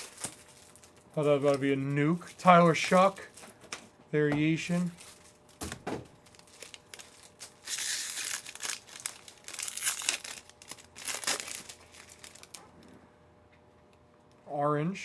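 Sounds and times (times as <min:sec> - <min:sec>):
foil wrapper tearing and crinkling: 0:00.0 - 0:03.7, 0:04.7 - 0:12.6.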